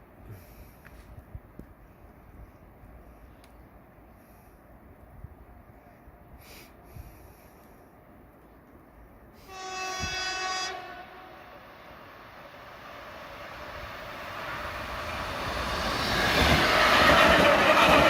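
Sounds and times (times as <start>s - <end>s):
train rail noise: 0.1s - 18.0s
train horn blast: 9.4s - 11.8s.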